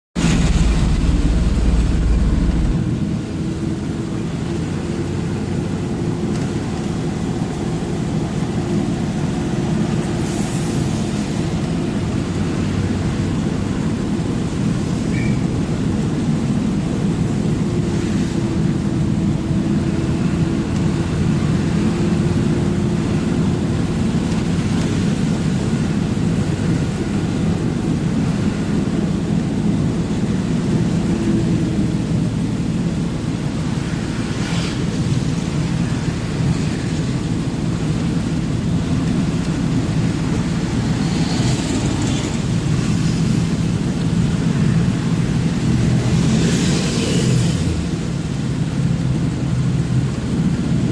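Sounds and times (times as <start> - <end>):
truck engine running: 0.2 - 10.1
road noise rumble: 0.2 - 50.9.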